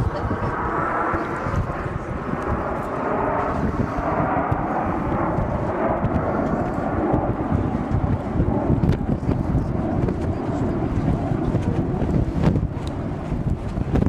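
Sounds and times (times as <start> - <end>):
aircraft engines rumbling: 0.0 - 14.0.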